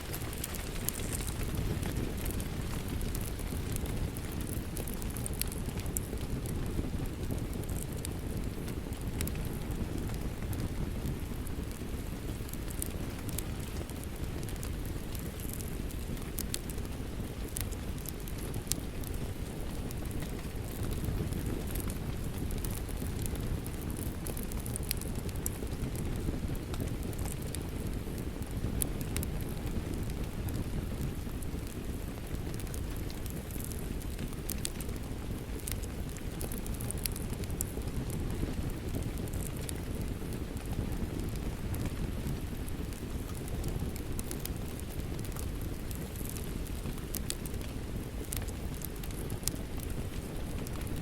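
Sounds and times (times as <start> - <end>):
rain rumbling: 0.0 - 16.6
sharp pops of fire: 0.0 - 51.0
wood fire crackling: 0.0 - 51.0.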